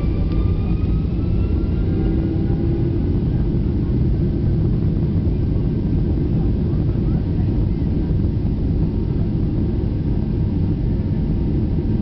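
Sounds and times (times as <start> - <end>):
faint engine whine rising: 0.0 - 4.5
jet engines rumbling in cabin: 0.0 - 12.0.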